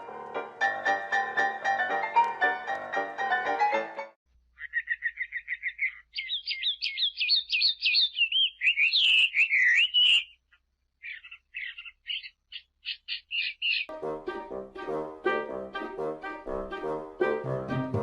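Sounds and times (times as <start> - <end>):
music: 0.0 - 4.2, 13.9 - 18.0
bird chirping and whistling: 4.6 - 10.4, 11.0 - 13.9.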